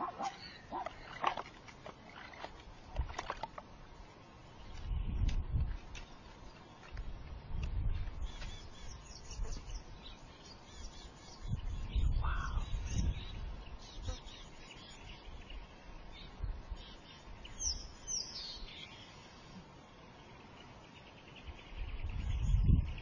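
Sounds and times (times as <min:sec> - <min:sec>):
birds chirping: 0:00.0 - 0:02.6, 0:07.8 - 0:23.0.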